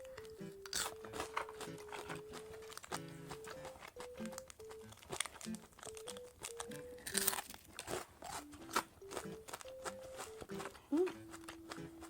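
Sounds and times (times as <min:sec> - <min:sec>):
fried chicken crunching: 0:00.0 - 0:12.0.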